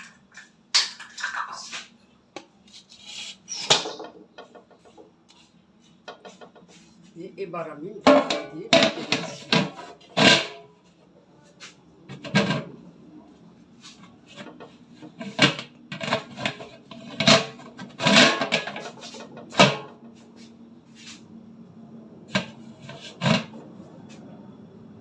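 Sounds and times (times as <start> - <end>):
cookware knocking and clattering: 8.1 - 10.6.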